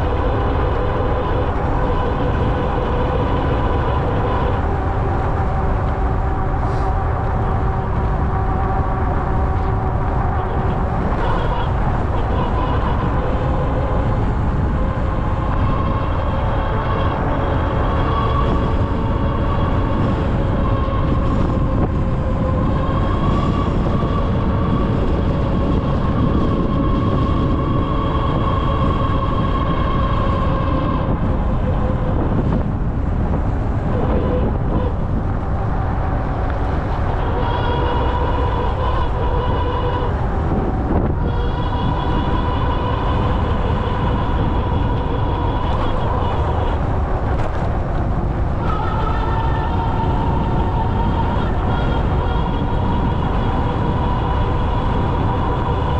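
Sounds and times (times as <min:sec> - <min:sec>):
wind and riding rumble: 0:00.0 - 0:55.9
electric motor whining: 0:33.5 - 0:55.9.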